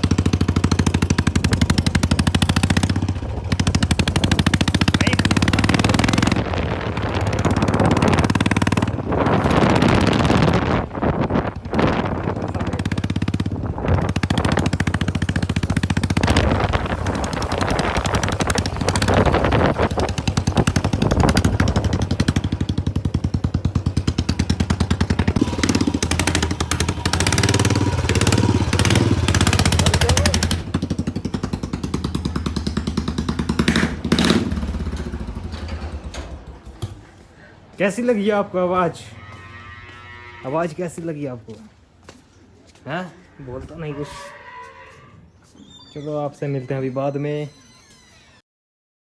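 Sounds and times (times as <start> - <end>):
motorcycle engine open exhaust: 0.0 - 37.8.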